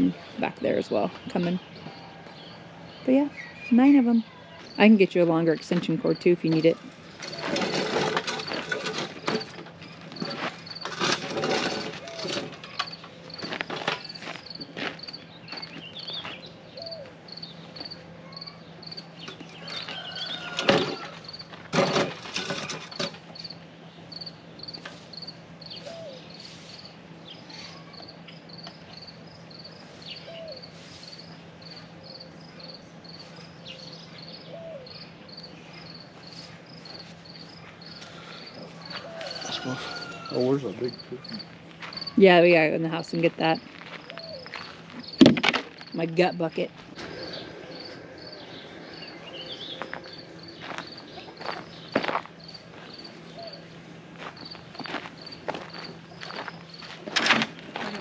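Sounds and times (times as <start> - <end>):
low steady hum: 0.0 - 58.0
insect chirping: 6.9 - 21.6, 22.4 - 42.2, 46.9 - 57.0.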